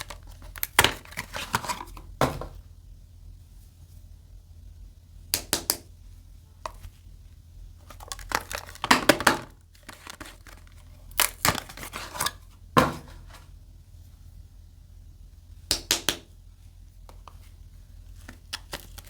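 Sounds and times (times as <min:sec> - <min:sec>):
wrapper crinkling and tearing: 0:07.8 - 0:12.4, 0:18.2 - 0:19.0.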